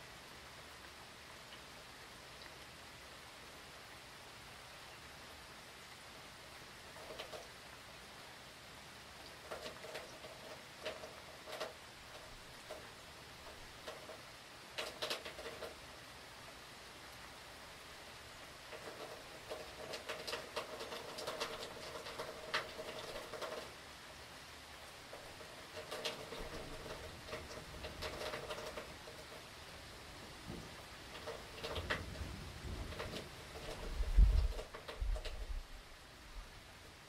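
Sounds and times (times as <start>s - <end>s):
rain hiss: 0.0s - 37.0s
water drips on hard surface: 24.8s - 29.5s, 30.4s - 35.4s.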